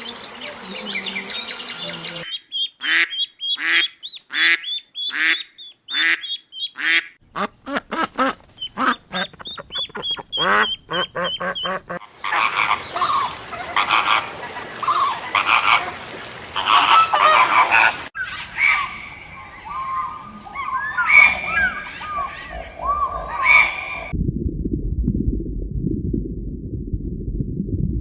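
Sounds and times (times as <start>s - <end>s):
geese honking: 1.8s - 24.1s.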